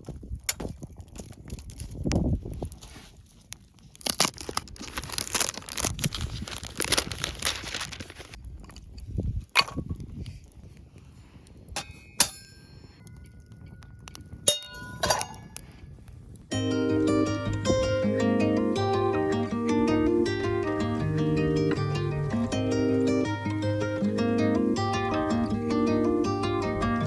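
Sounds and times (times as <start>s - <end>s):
packaging rustling and crinkling: 0.0s - 11.2s
metal utensils clinking: 11.8s - 15.6s.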